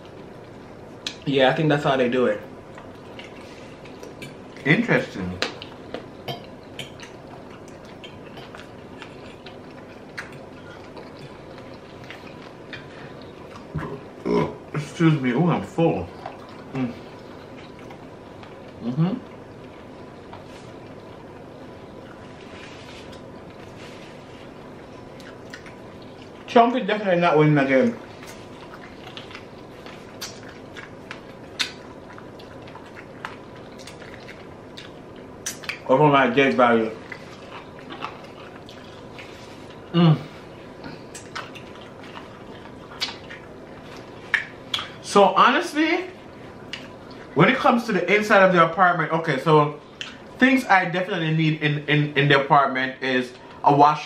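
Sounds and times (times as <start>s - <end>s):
wet chewing and mouth clicks: 2.5s - 14.7s, 16.1s - 26.5s, 27.6s - 35.9s, 36.5s - 39.9s, 40.5s - 45.0s, 46.2s - 47.4s, 49.8s - 50.3s.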